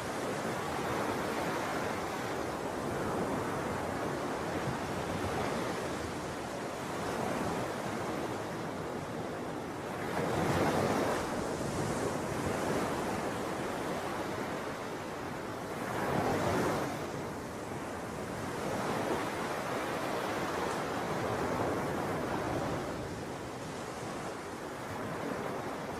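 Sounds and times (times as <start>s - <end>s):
ocean waves breaking: 9.8s - 25.9s.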